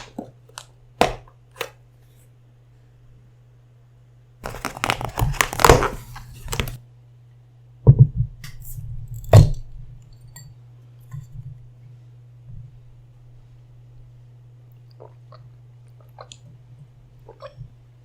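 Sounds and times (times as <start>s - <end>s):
low steady hum: 0.0s - 18.0s
food crunching: 4.4s - 6.8s.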